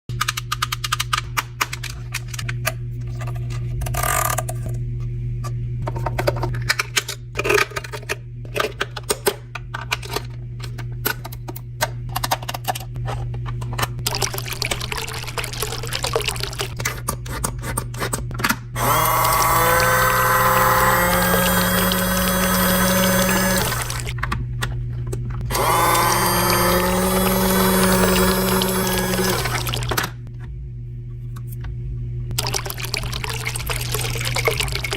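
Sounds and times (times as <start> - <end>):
clicks and knocks of parts: 5.9 - 14.0
water running: 14.1 - 16.8, 18.8 - 24.2, 25.5 - 30.1, 32.4 - 34.9
electric motor humming: 18.8 - 24.2, 25.4 - 30.2.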